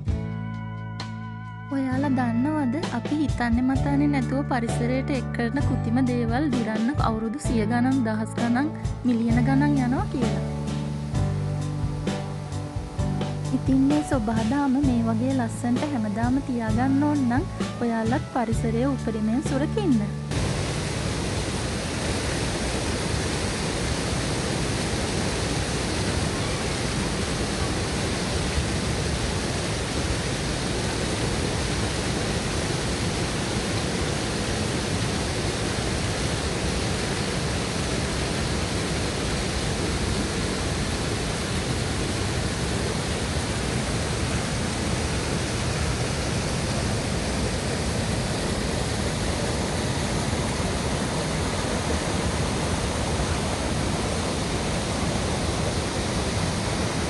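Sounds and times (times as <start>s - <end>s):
waterfall rushing: 9.1s - 17.7s, 20.2s - 57.0s.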